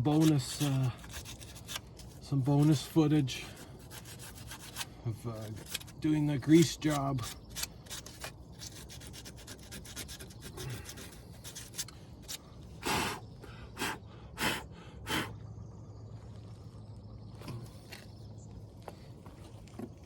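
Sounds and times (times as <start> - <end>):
sandpaper scraping metal: 0.0 - 12.4.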